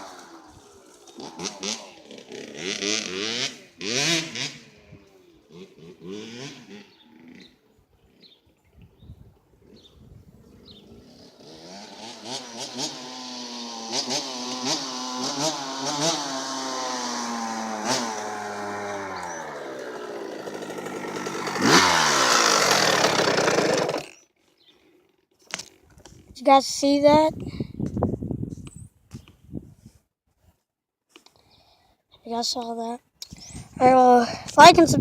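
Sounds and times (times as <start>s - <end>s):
two-stroke dirt bike revving: 0.0s - 8.3s, 10.7s - 24.3s.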